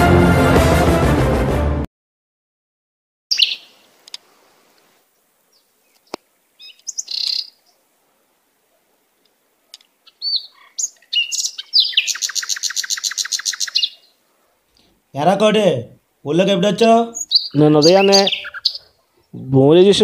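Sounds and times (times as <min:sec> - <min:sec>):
bird trilling: 0:03.3 - 0:03.9, 0:06.6 - 0:07.6, 0:10.0 - 0:14.2, 0:17.1 - 0:19.0
birds chirping: 0:03.3 - 0:04.2, 0:05.4 - 0:08.0, 0:08.6 - 0:15.6, 0:16.3 - 0:20.0.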